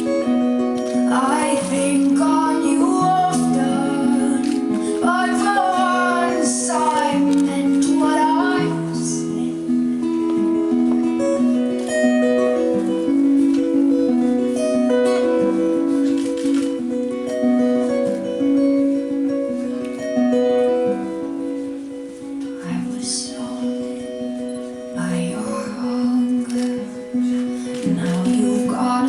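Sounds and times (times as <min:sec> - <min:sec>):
woman singing: 0:00.0 - 0:10.4, 0:22.6 - 0:29.0
acoustic guitar plucked and strummed: 0:00.0 - 0:29.0.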